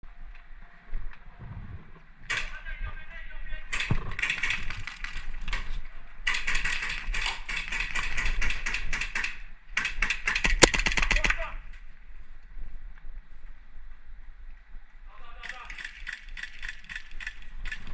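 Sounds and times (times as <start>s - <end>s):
airsoft gun firing bursts: 3.7s - 11.5s.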